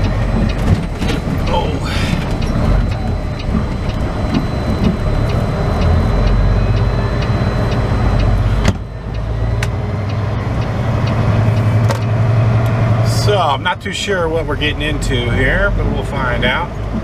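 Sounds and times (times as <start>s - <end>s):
light ticking: 0.0s - 13.5s
diesel truck engine running: 0.0s - 17.0s.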